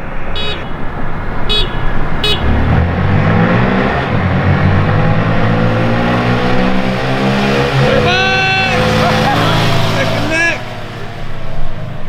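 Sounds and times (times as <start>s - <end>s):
horn beeps: 0.0s - 4.0s
minibike engines accelerating: 0.0s - 12.0s.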